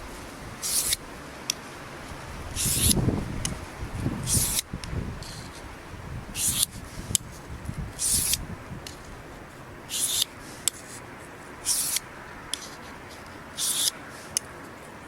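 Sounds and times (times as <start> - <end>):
knife scraping on whetstone: 0.6 - 1.0, 2.6 - 3.0, 4.2 - 5.6, 6.4 - 6.8, 8.0 - 8.4, 9.9 - 11.0, 11.6 - 12.0, 13.6 - 14.0.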